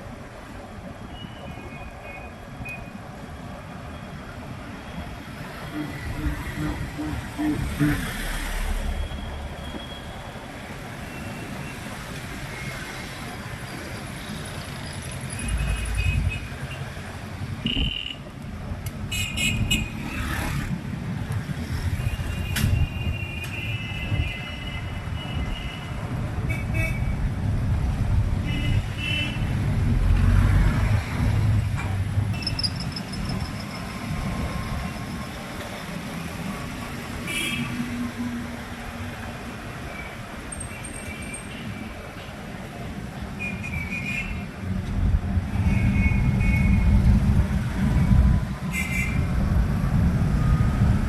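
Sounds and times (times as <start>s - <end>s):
street traffic rumble: 0.0s - 51.0s.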